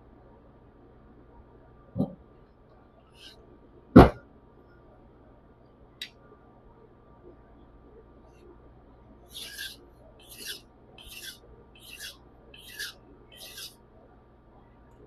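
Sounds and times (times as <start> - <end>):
knife scraping on whetstone: 9.3 - 13.8.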